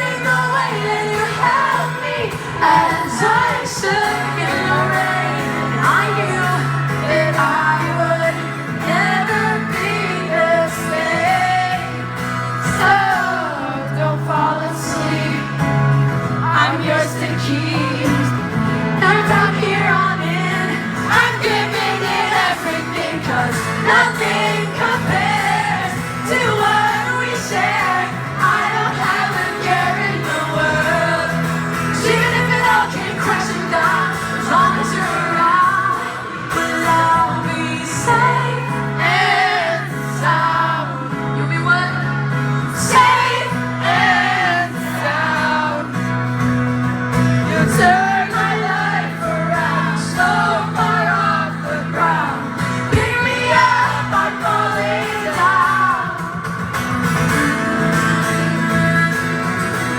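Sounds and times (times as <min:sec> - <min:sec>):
pop-punk band playing live: 0:00.0 - 0:59.9
person singing: 0:16.4 - 0:45.9.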